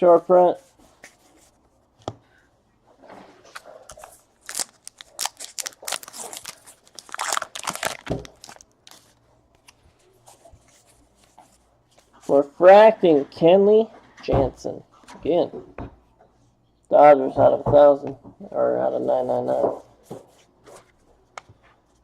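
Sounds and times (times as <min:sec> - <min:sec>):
wrapper crinkling and tearing: 0:03.5 - 0:09.2.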